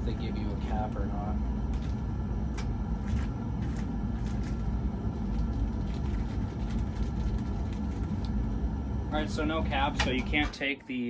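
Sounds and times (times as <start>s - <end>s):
steady low rumble: 0.0s - 10.6s
plastic bag rustling: 3.0s - 8.4s.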